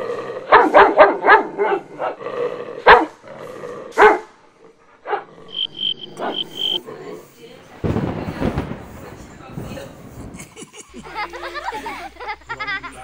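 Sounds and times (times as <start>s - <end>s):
dog barking: 0.5s - 2.2s, 2.8s - 3.2s, 3.9s - 4.3s, 5.0s - 6.8s.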